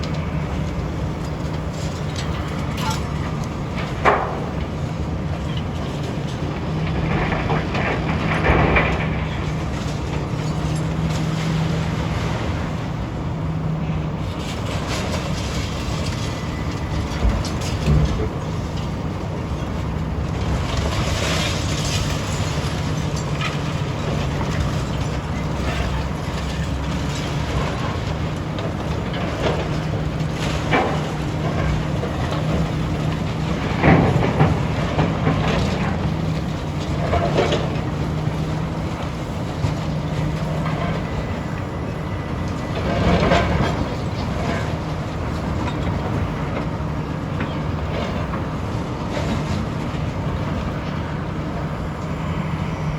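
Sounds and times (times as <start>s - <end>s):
clanks and crashing debris: 0.0s - 13.0s, 14.3s - 41.7s, 42.3s - 51.0s
diesel engine running: 0.0s - 52.9s.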